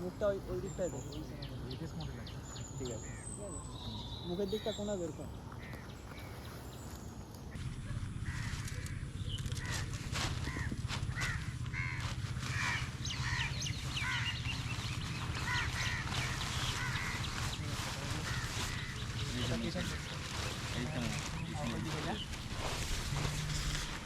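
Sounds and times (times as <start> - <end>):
birds cawing: 0.0 - 24.0
low hum: 1.6 - 24.0.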